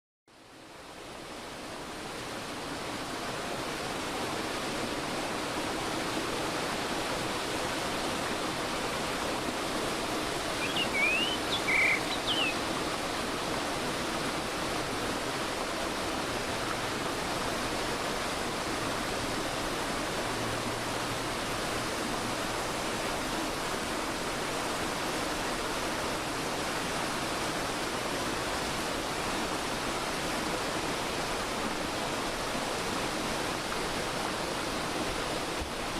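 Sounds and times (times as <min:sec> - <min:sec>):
stream flowing over rocks: 0:00.3 - 0:35.9
bird chirping: 0:10.6 - 0:12.6.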